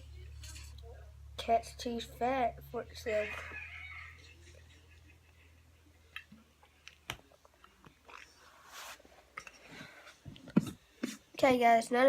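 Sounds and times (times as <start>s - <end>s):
soft rustling: 8.1s - 11.3s.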